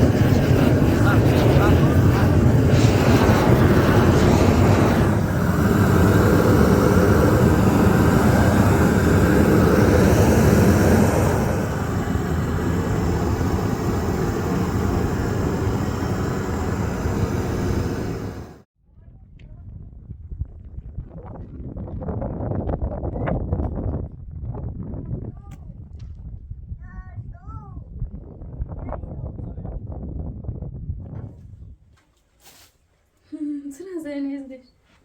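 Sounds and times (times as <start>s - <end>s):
loud mechanical roar: 0.0s - 18.6s.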